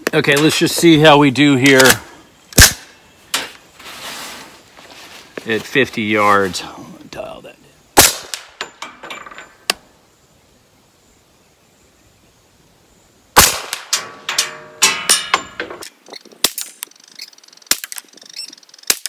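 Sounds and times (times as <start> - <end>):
gunshots: 2.6 - 2.8, 8.0 - 8.6, 13.4 - 14.0.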